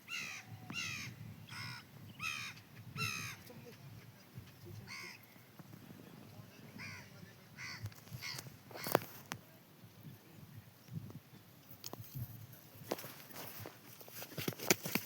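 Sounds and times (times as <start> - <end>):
bird calling: 0.0 - 5.6, 6.7 - 9.2
low background noise: 0.0 - 15.0.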